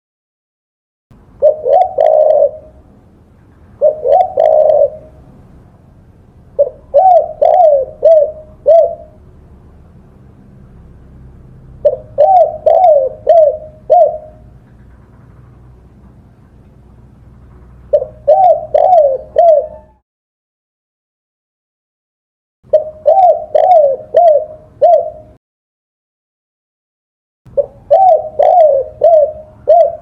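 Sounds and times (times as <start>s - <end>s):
dove cooing: 1.4s - 2.9s, 3.8s - 5.3s, 6.6s - 9.2s, 11.8s - 15.2s, 17.8s - 20.0s, 22.7s - 25.4s, 27.5s - 30.0s.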